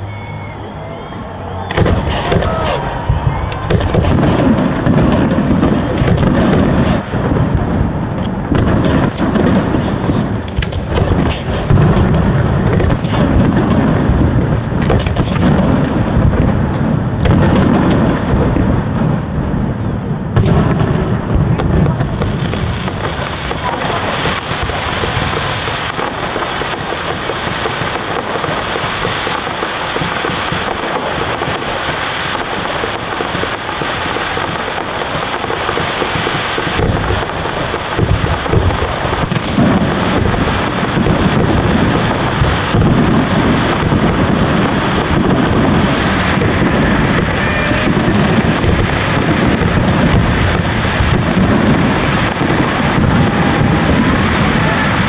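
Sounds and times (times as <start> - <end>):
fireworks crackling: 0.0 - 55.0
low fireworks booms: 0.0 - 55.0.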